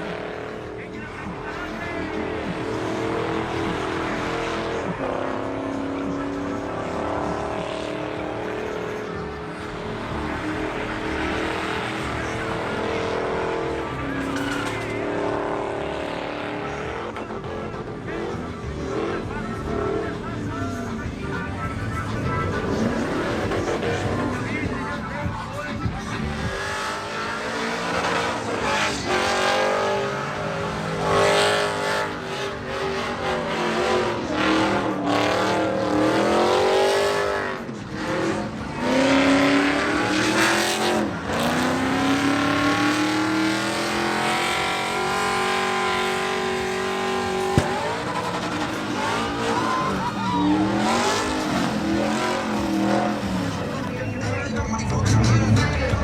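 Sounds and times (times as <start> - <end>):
truck engine revving: 0.0 - 56.0
tyre squeal: 14.0 - 15.0, 46.4 - 54.2.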